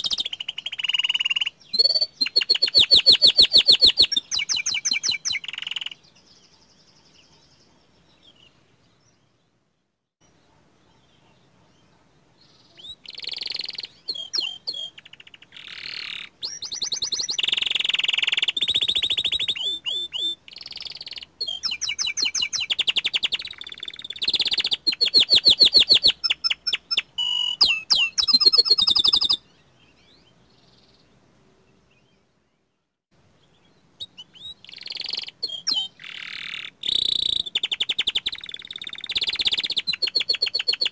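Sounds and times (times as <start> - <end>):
canary trilling and chirping: 0.0 - 7.8, 12.5 - 29.4, 34.0 - 40.9.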